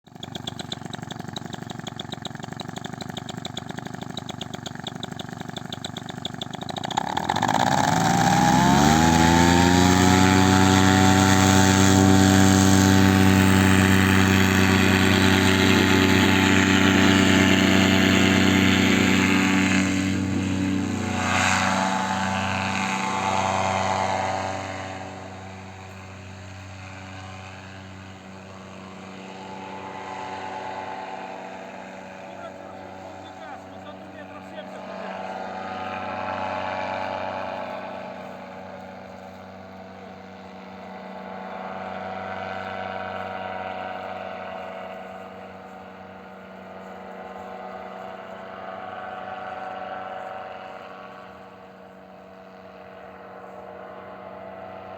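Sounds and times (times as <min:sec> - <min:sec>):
paramotor engine running: 0:00.0 - 0:54.9.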